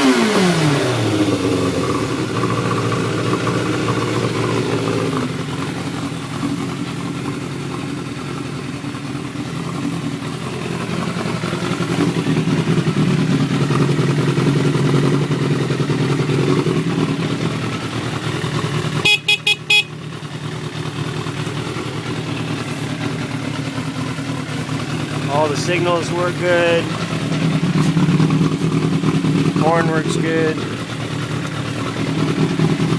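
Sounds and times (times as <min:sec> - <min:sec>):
motorcycle engine idling: 0:00.3 - 0:32.9
motorcycle horn beeps: 0:19.0 - 0:20.1.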